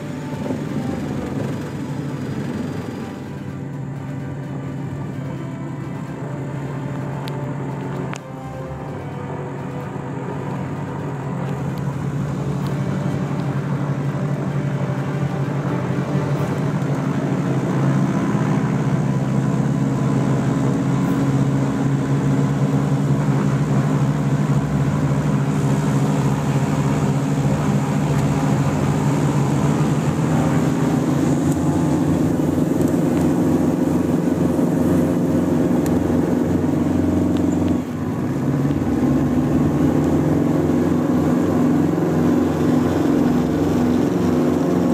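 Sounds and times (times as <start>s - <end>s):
aircraft engines droning: 0.0s - 44.9s.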